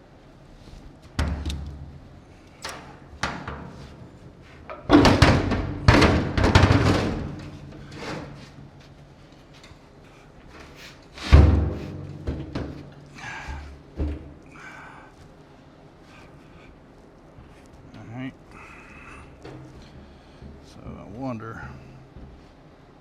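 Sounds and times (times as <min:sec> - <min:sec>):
metal knocks and bangs: 0:01.2 - 0:02.1, 0:03.1 - 0:08.9, 0:11.2 - 0:14.4, 0:19.3 - 0:20.8.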